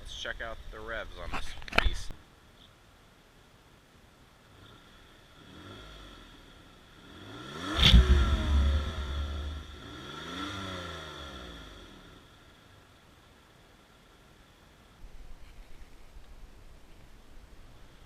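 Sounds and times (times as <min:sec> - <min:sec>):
car engine revving: 0:04.5 - 0:12.4.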